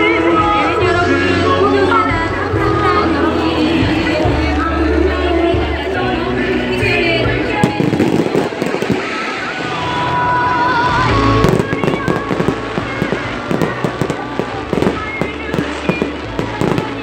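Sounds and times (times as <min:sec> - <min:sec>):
fireworks bangs and crackles: 0:07.5 - 0:17.0.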